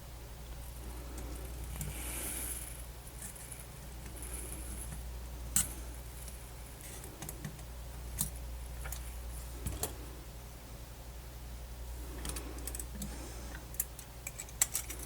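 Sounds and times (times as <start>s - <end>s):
low electrical hum: 0.0s - 15.0s
small plastic parts clicking: 13.7s - 15.0s.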